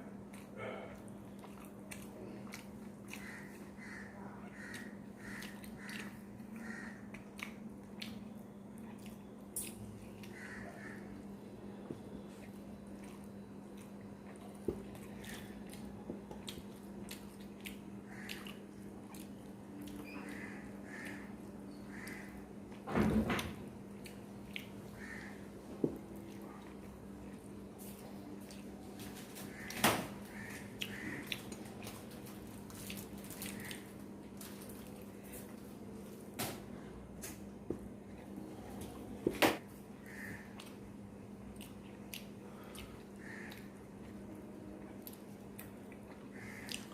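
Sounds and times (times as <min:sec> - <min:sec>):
steady low hum: 0:00.0 - 0:46.9
wet squishing of food chewed: 0:00.1 - 0:22.8, 0:23.9 - 0:36.2, 0:40.0 - 0:46.9.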